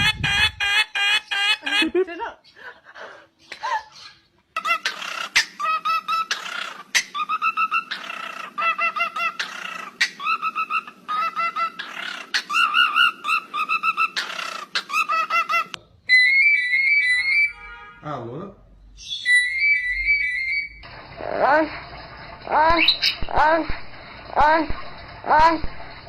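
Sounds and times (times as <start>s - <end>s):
bird calling: 3.5s - 17.6s, 22.5s - 23.7s
steady low hum: 20.6s - 26.0s.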